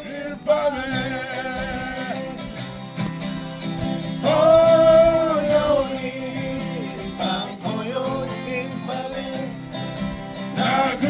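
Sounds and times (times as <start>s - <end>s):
acoustic guitar: 0.0s - 11.0s
person singing: 4.2s - 9.6s.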